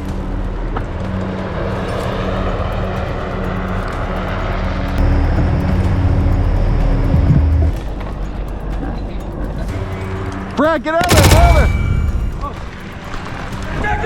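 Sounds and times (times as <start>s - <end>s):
passing vehicle engine rumble: 0.0s - 10.4s.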